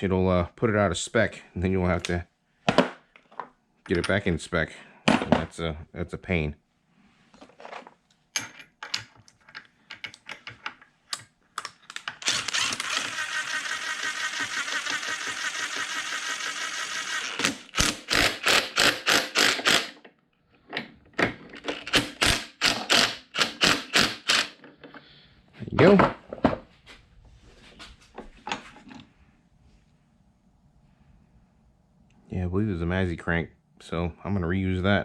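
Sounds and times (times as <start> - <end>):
ratchet wrench clicking: 12.2 - 20.0.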